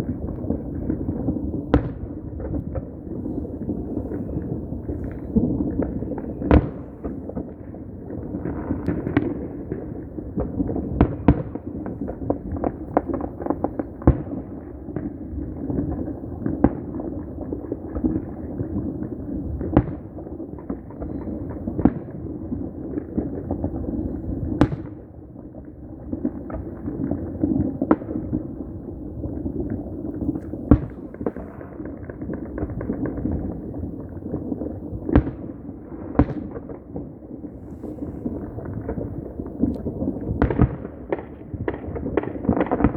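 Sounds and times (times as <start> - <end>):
firecracker bangs: 0.0 - 7.5, 30.6 - 33.5
distant fireworks crackling: 0.0 - 42.9.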